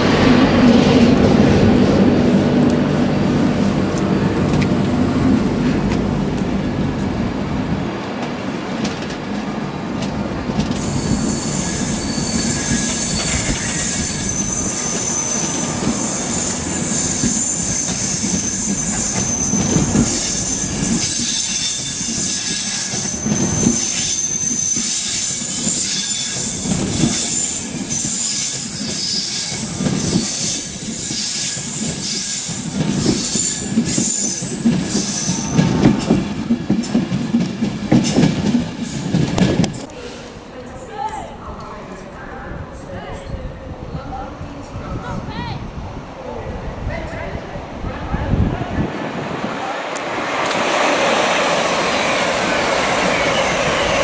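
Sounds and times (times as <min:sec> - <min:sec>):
train rumbling on rails: 0:00.0 - 0:54.0
train wheels squealing: 0:10.7 - 0:36.2, 0:51.8 - 0:54.0.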